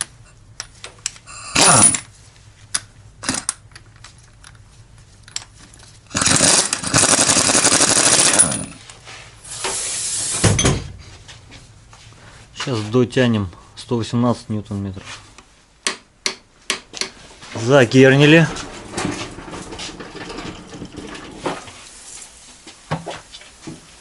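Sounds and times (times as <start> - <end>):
impact wrench hammering: 15.8 - 17.2
tool clicks and knocks: 15.8 - 17.2.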